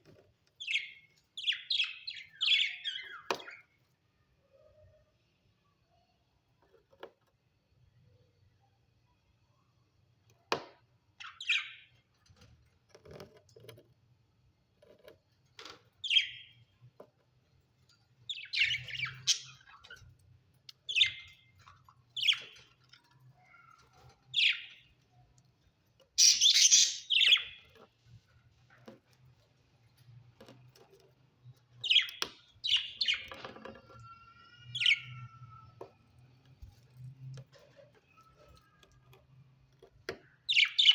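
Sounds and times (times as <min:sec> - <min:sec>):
budgerigars chirping: 0:26.2 - 0:27.5.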